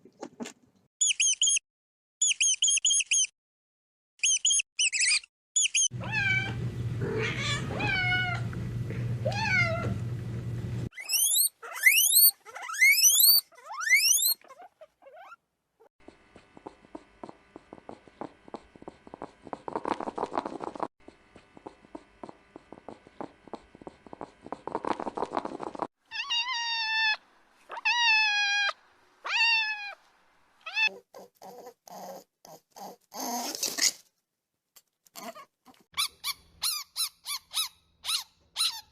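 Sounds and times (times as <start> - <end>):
cat meowing: 6.0 - 8.4, 9.2 - 10.0, 26.1 - 30.0
cat crying: 6.0 - 8.5, 9.2 - 10.0, 26.1 - 30.0, 30.6 - 31.0
cat purring: 16.5 - 20.9, 21.5 - 25.9.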